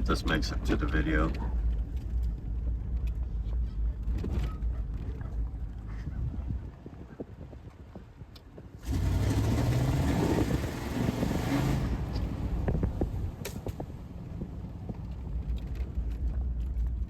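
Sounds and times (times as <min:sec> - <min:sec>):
engine pulling under load: 0:08.8 - 0:12.7.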